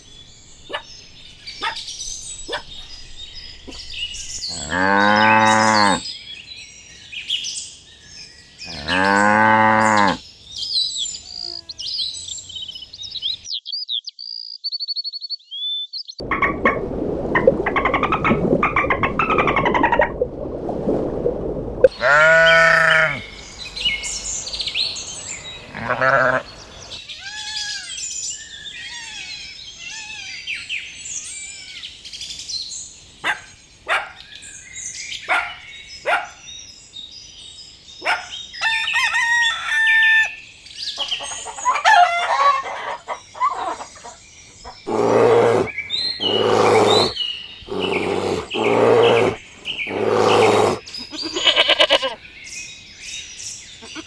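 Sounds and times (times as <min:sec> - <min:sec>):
loud animal calls: 0:08.7 - 0:10.2, 0:21.9 - 0:23.3, 0:44.9 - 0:52.2.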